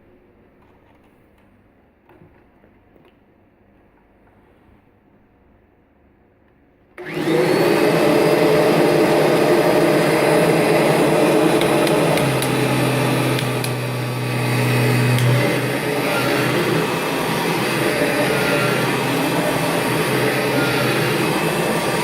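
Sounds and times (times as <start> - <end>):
vacuum cleaner motor running: 7.0 - 22.0.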